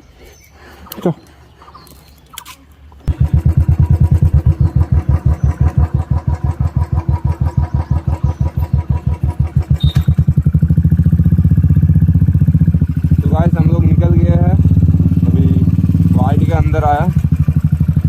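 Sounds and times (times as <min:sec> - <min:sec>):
motorcycle engine idling and revving: 0:03.0 - 0:18.0.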